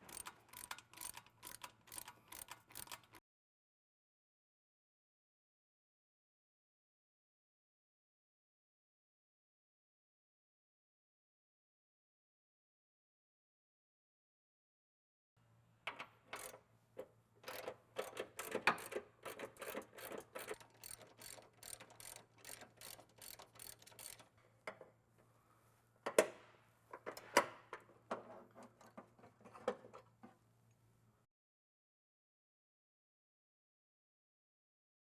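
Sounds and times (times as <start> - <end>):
ratchet wrench clicking: 0.0 - 3.2, 16.4 - 16.6, 17.4 - 24.3.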